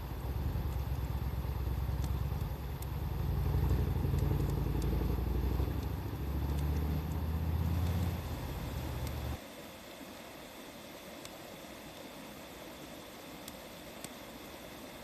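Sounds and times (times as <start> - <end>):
low uneven rumble: 0.0 - 9.4
wood fire crackling: 0.0 - 9.4.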